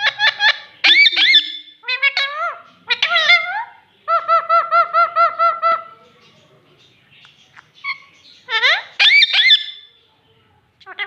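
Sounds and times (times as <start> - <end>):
parakeet squawks and chirps: 0.0 - 6.0, 7.2 - 10.0.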